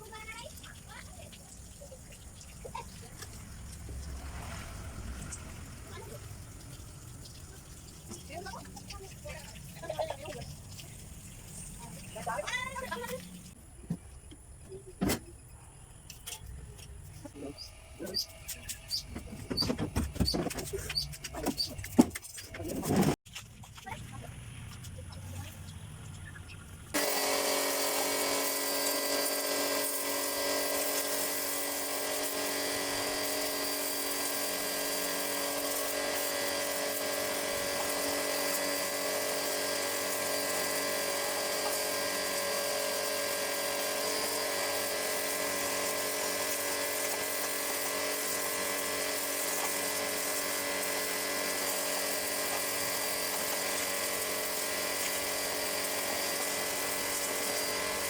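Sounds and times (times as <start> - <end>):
electric workshop tool whining: 27.0 - 58.0.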